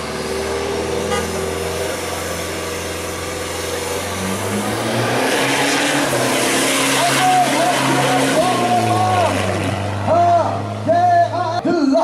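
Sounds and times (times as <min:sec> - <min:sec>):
car engine revving: 0:00.0 - 0:11.6.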